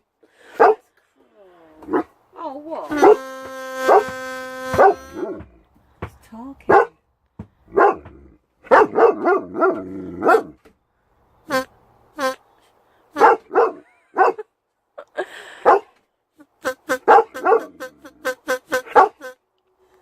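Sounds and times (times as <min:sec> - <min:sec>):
dog barking: 0:00.6 - 0:00.8, 0:03.0 - 0:03.2, 0:04.8 - 0:05.4, 0:06.7 - 0:07.0, 0:07.7 - 0:10.6, 0:13.2 - 0:14.4, 0:15.6 - 0:15.9, 0:17.0 - 0:17.8, 0:18.9 - 0:19.3.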